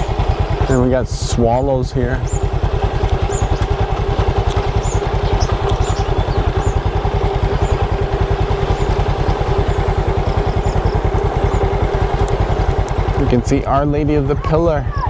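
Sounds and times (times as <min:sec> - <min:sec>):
swallows chirping: 0:00.0 - 0:13.8
motorcycle engine running: 0:00.0 - 0:15.0.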